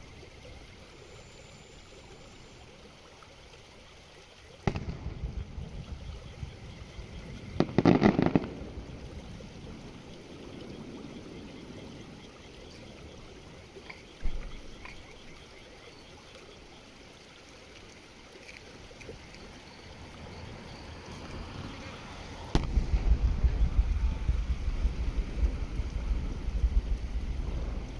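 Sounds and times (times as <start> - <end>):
deep firework boom: 4.6 - 8.9, 22.5 - 27.9
fireworks bangs and crackles: 4.6 - 9.8, 22.5 - 27.9.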